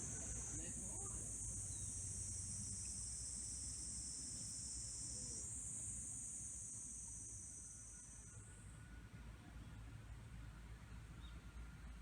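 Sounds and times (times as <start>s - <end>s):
high-pitched insect chorus: 0.0s - 8.5s.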